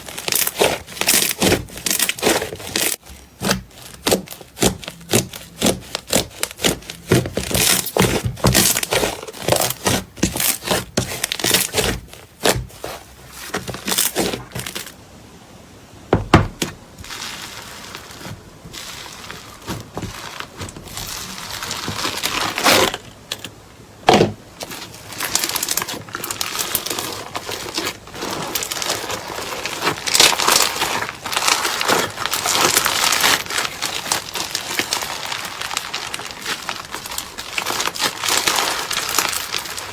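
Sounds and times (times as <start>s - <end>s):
slime crackling: 0.0s - 15.0s, 16.2s - 23.2s, 24.6s - 39.9s.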